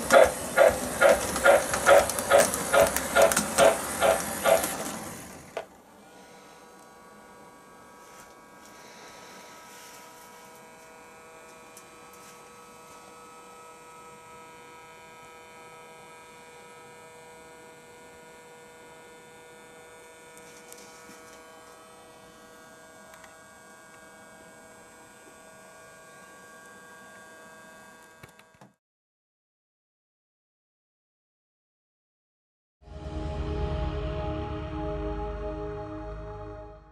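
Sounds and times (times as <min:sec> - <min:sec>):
model locomotive humming: 0:00.0 - 0:28.2.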